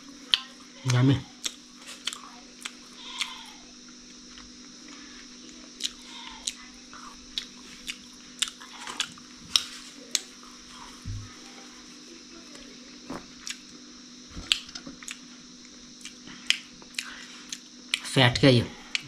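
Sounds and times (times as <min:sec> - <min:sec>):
person chewing wetly: 0:01.4 - 0:03.5, 0:05.8 - 0:10.3, 0:13.4 - 0:13.7, 0:16.0 - 0:18.0.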